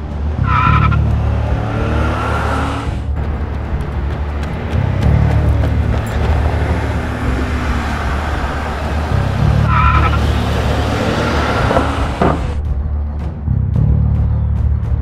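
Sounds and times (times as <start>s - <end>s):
car engine running hard: 0.0s - 13.0s.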